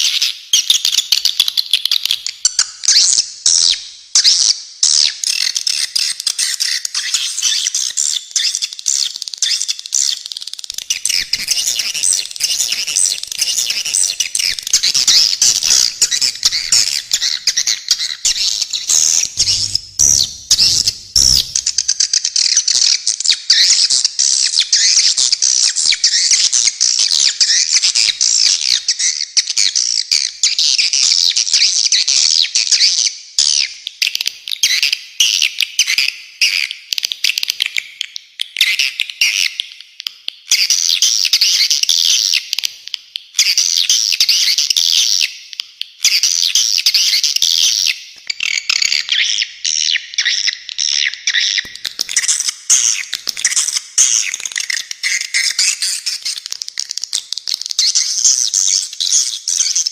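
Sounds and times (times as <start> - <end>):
swiftlets twittering: 10.8 - 22.0
low thumps: 14.6 - 22.0.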